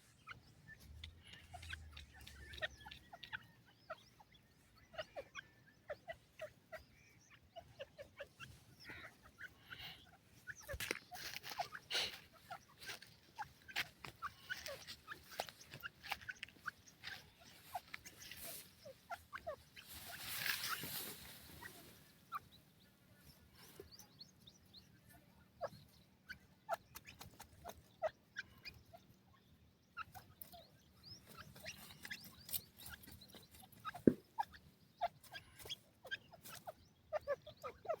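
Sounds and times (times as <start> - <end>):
game birds clucking and chirping: 0.0 - 38.0.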